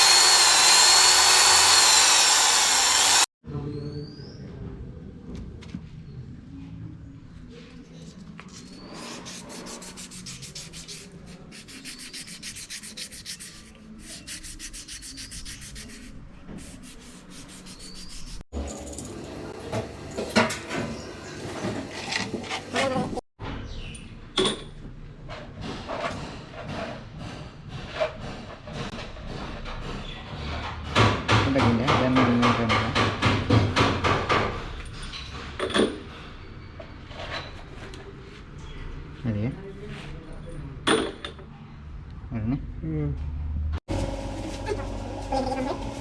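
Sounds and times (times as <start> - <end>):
scraping strokes on hard surface: 7.6 - 18.4.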